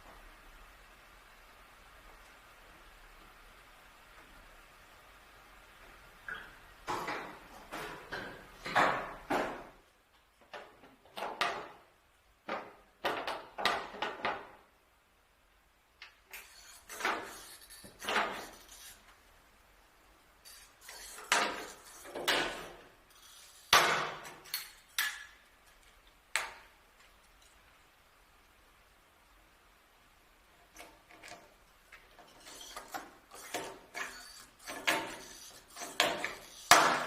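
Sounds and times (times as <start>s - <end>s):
short scraping hiss: 16.3s - 19.3s, 20.4s - 25.0s.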